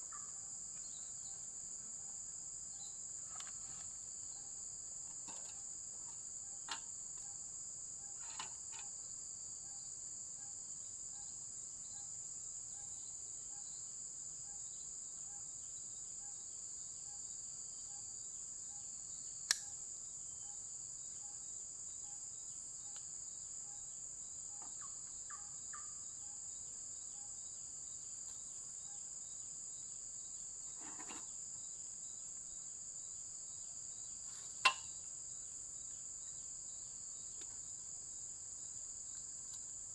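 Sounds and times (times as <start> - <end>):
insects chirring: 0.0 - 39.9
sharp click: 19.5 - 19.7.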